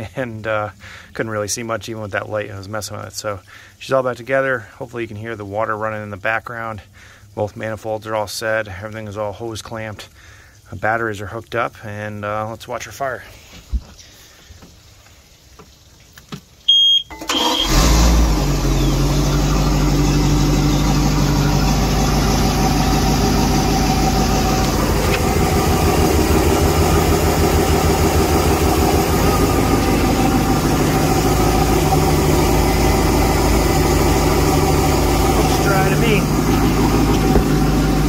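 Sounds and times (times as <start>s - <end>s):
short high beep: 16.7s - 17.7s
engine cranking and idling: 17.1s - 38.0s.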